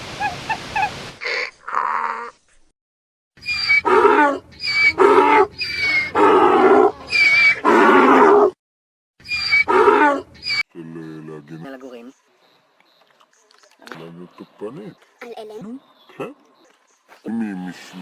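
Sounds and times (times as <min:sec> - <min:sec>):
large animal calling: 0:03.4 - 0:08.6, 0:09.2 - 0:11.3.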